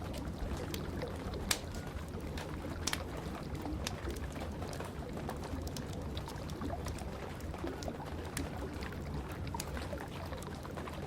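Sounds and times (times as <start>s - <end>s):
steady rain: 0.0s - 11.0s
wood fire crackling and popping: 0.0s - 11.0s.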